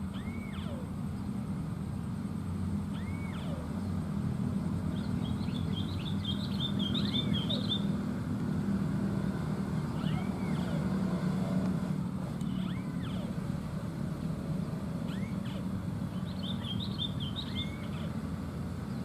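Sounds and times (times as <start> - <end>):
high chattering bird trill: 0.0 - 1.0, 2.9 - 4.0, 4.9 - 7.9, 9.8 - 11.0, 12.4 - 13.4, 15.0 - 18.2
rising and falling bird whistle: 0.0 - 1.0, 2.9 - 3.8, 4.9 - 8.0, 9.8 - 11.0, 12.4 - 13.4, 15.0 - 18.2
steady low hum: 0.0 - 19.0.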